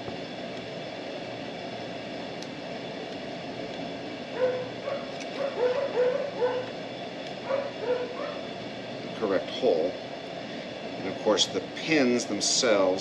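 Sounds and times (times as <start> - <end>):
steady background hum: 0.0 - 13.0
dog yipping: 4.4 - 6.7, 7.4 - 8.5.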